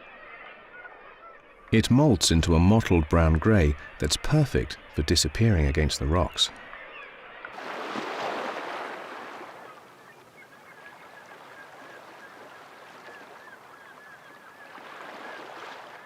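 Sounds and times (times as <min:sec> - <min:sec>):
faint wavering bird call: 0:09.4 - 0:16.0.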